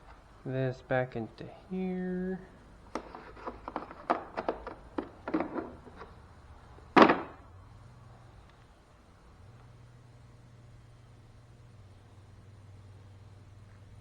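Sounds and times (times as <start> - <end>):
loud thunk: 7.0 - 7.4.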